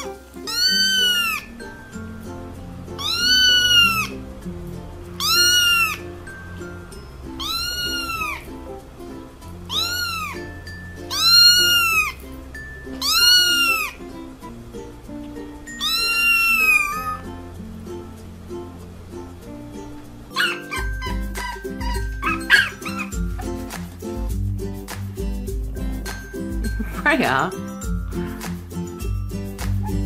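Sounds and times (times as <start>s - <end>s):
kitten meowing: 0.0s - 1.5s, 3.0s - 4.2s, 5.1s - 6.1s, 7.3s - 8.5s, 9.6s - 10.5s, 11.1s - 12.3s, 12.9s - 14.0s, 15.7s - 17.3s, 20.4s - 23.2s
background music: 0.0s - 30.0s.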